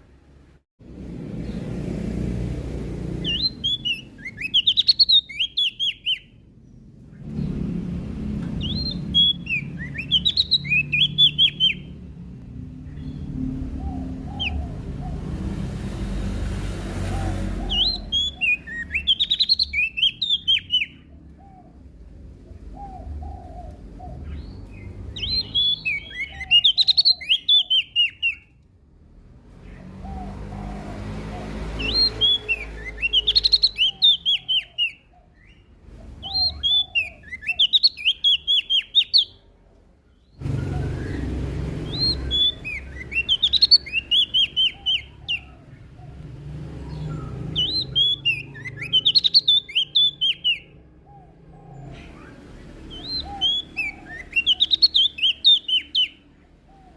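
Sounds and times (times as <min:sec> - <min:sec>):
warbler high chattering song: 0:03.0 - 0:07.5, 0:08.6 - 0:12.2, 0:17.4 - 0:28.6, 0:31.1 - 0:39.5, 0:40.2 - 0:56.9.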